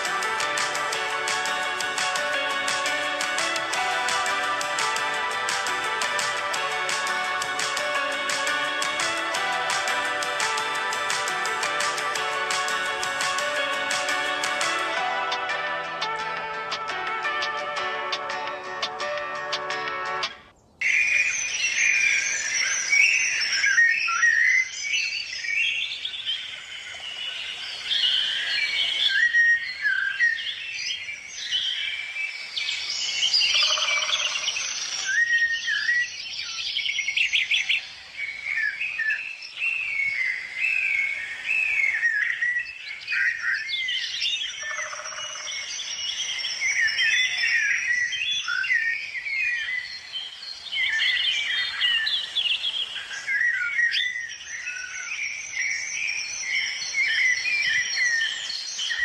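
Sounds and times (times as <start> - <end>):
birds chirping and singing: 20.7 - 59.0.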